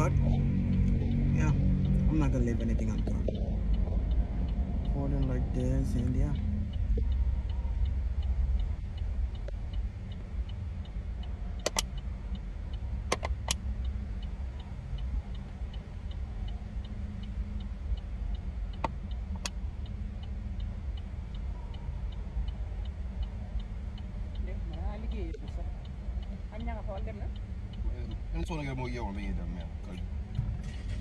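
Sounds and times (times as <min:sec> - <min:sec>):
road and engine rumble in car: 0:00.0 - 0:31.0
turn signal ticking: 0:00.0 - 0:31.0
sharp clicks: 0:11.2 - 0:12.4, 0:13.0 - 0:14.0.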